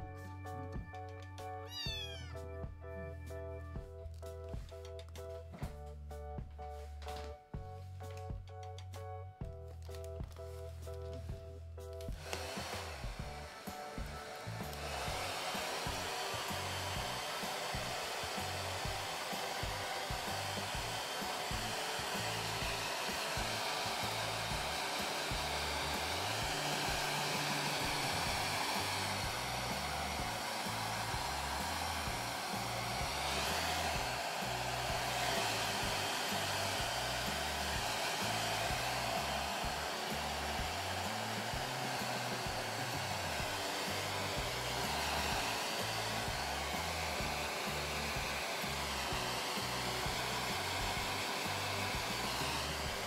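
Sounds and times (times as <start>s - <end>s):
hair dryer running: 12.1s - 53.0s.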